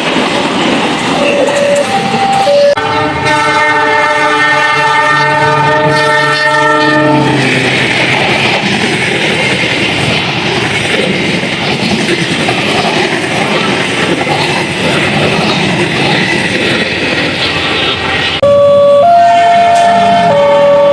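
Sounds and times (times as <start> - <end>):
train carriages rushing and rattling: 0.0 - 20.9
locomotive horn: 1.2 - 7.4, 18.4 - 20.9.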